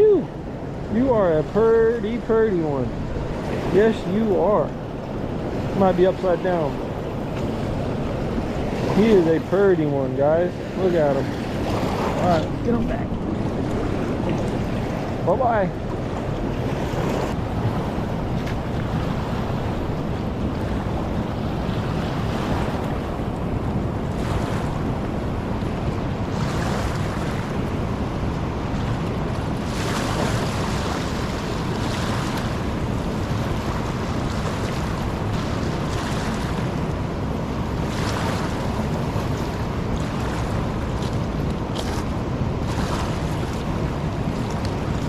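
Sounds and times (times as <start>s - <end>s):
river rushing: 0.0s - 45.0s
water splashing: 29.4s - 37.0s.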